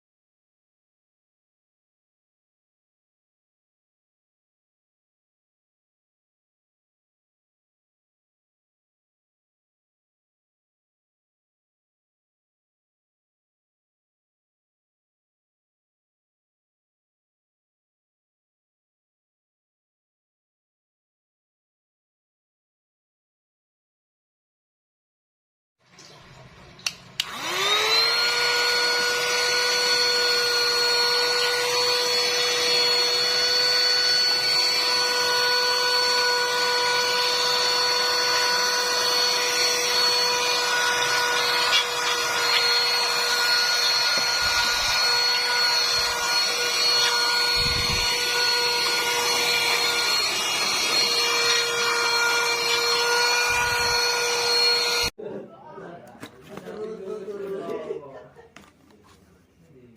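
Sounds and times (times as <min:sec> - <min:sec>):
handheld vacuum motor whine: 0:27.2 - 0:55.1.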